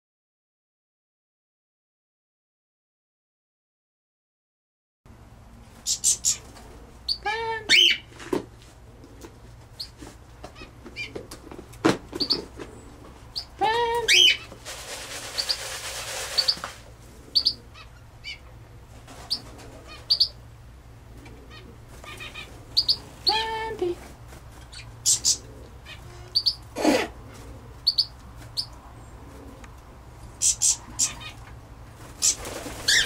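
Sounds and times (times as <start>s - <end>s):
birds chirping: 5.8s - 8.1s, 8.8s - 11.2s, 12.1s - 14.6s, 15.2s - 33.0s
harsh bird calls: 5.8s - 8.1s, 12.2s - 14.6s, 15.2s - 18.6s, 19.2s - 20.5s, 21.2s - 23.5s, 24.6s - 29.6s, 30.4s - 31.5s, 32.2s - 33.0s.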